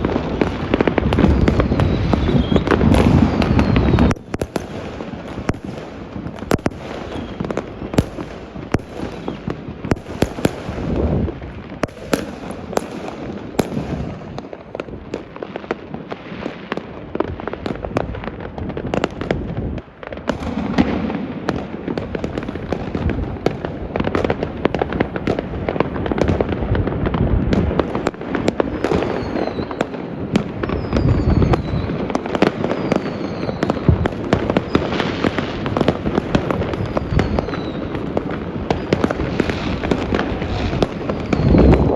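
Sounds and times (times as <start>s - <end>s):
falling firework whistles: 0.0s - 14.6s, 28.7s - 41.9s
deep firework booms: 0.0s - 41.9s
firecrackers crackling and banging: 0.0s - 41.9s.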